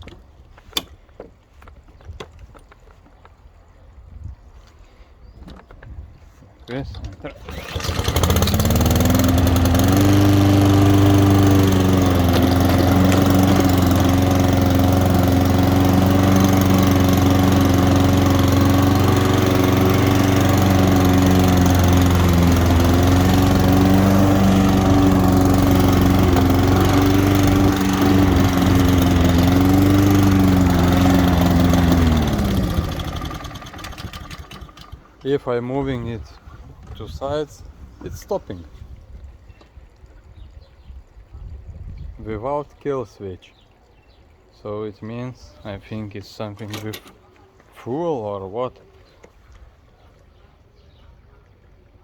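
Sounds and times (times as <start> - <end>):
lawn mower engine running: 7.3 - 35.5, 46.5 - 47.3.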